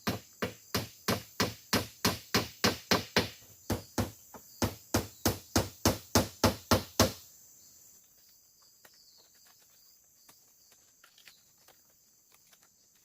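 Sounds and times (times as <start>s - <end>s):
tool striking wood: 0.0s - 7.2s
faint insect hum: 0.0s - 13.0s.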